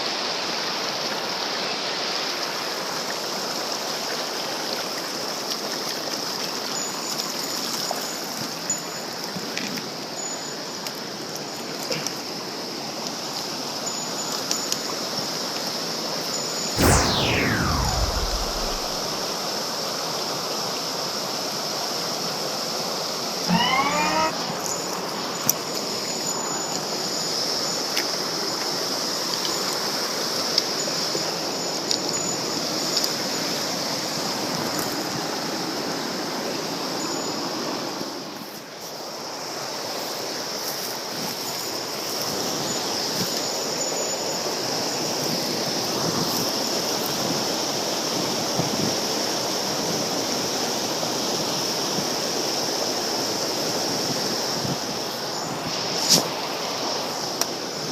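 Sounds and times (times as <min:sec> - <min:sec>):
rising squeal: 0:16.8 - 0:19.3, 0:23.5 - 0:24.6.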